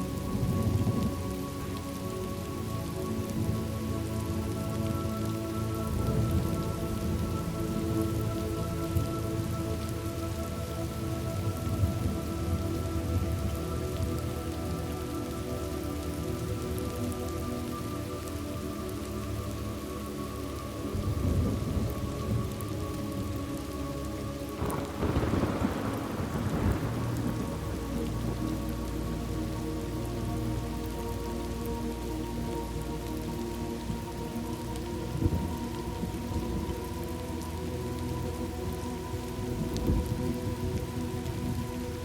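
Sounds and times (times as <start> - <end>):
soft sustained chord: 0.0 - 42.0
steady rain patter: 0.0 - 42.0
thunder rumbling: 24.6 - 29.6.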